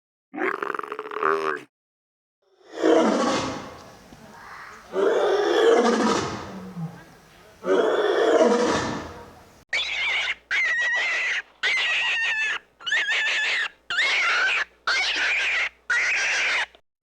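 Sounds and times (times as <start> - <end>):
animal roaring: 2.6 - 9.3
short high calls: 9.7 - 16.7.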